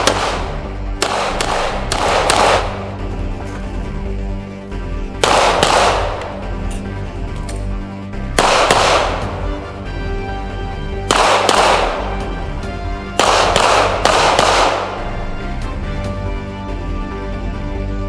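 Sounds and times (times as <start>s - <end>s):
echoing gunshots: 0.0s - 3.1s, 5.2s - 6.6s, 8.2s - 9.8s, 10.9s - 12.4s, 13.1s - 15.3s
background music: 0.0s - 18.0s.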